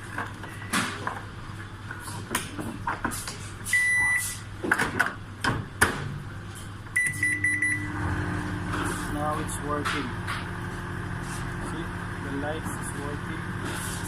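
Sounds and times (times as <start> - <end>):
microwave oven humming: 0.0 - 14.0
microwave beeps: 3.7 - 4.4, 7.0 - 8.4.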